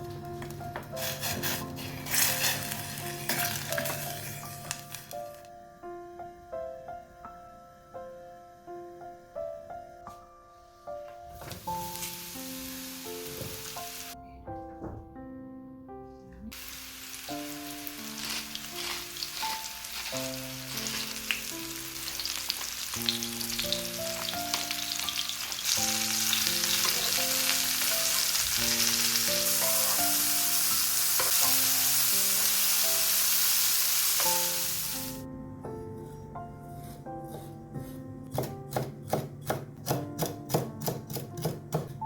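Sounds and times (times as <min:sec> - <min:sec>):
soft background music: 0:00.0 - 0:42.0
food sizzling in hot oil: 0:01.0 - 0:05.2, 0:11.6 - 0:14.2, 0:16.5 - 0:35.2.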